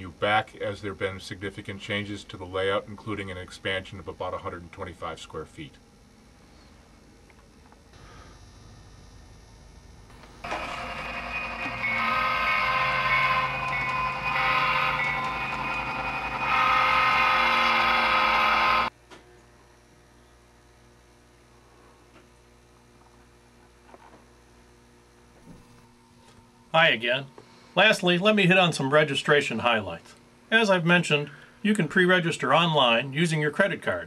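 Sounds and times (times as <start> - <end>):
model train hum and rumble: 8.0 - 18.9
steady tones: 10.1 - 18.9.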